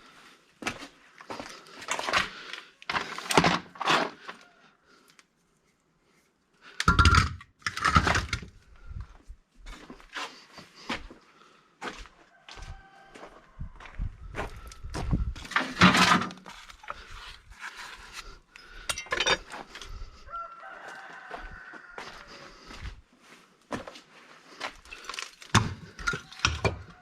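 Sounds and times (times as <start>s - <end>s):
items clattering and knocking: 2.9s - 4.2s, 6.8s - 8.6s, 15.4s - 17.1s, 18.8s - 19.7s, 24.8s - 27.0s.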